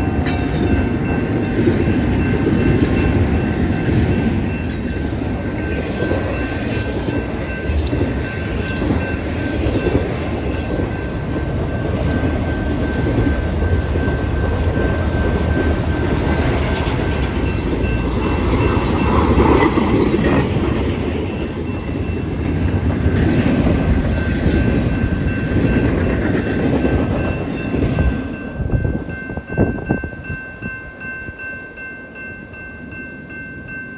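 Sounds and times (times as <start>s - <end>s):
high ringing: 0.0s - 20.1s
freight train wheels rumbling: 0.0s - 33.9s.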